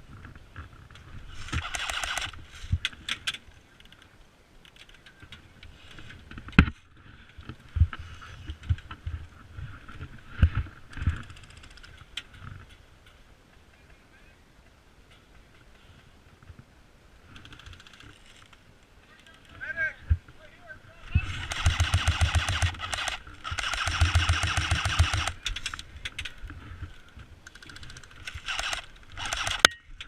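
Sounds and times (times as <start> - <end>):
rapid clicks: 1.5 - 4.0, 21.4 - 26.4, 27.4 - 29.8
rustling: 15.1 - 30.0.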